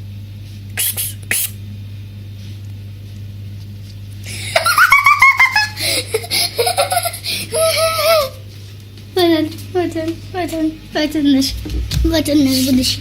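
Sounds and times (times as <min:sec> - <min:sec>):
steady low hum: 0:00.0 - 0:13.0
child giggling: 0:04.3 - 0:08.4.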